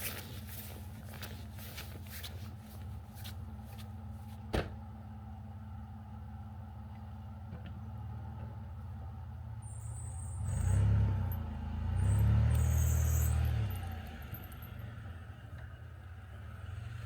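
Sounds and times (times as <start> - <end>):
vehicle engine revving: 10.4 - 15.0.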